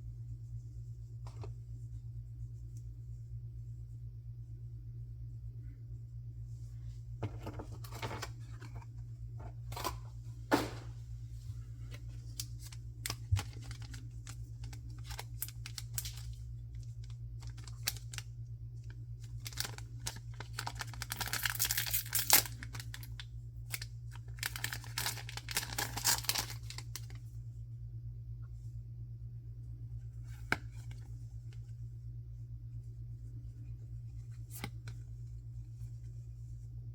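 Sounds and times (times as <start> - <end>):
low hum: 0.0 - 36.9
packaging torn and crinkled: 12.3 - 18.3, 19.2 - 27.2.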